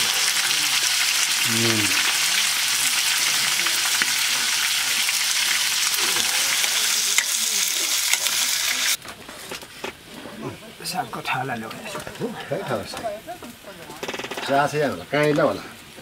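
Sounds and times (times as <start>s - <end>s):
meat sizzling in a wok: 0.0s - 9.0s.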